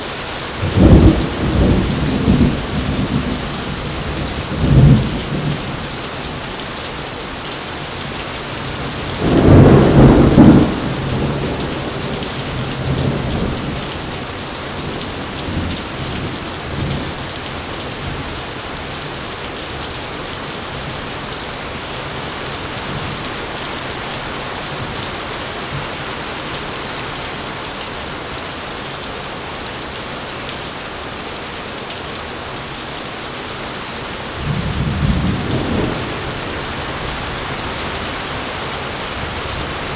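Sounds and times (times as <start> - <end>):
heavy rain: 0.0 - 39.9
thunder rumbling: 8.9 - 14.1, 34.4 - 39.9.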